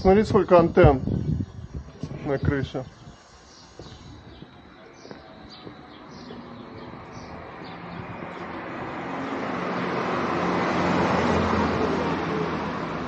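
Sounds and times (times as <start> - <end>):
vehicle driving past: 5.9 - 13.0.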